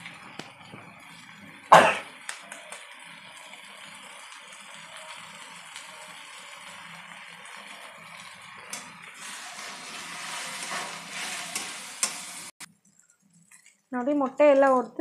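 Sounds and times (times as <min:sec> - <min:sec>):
food sizzling in oil: 0:00.0 - 0:12.7
spatula stirring: 0:09.1 - 0:13.9.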